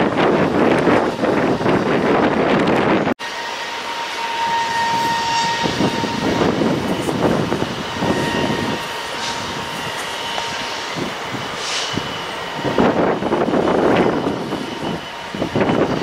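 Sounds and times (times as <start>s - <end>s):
distant train rumble: 0.0s - 16.0s
thin high whine: 3.2s - 16.0s.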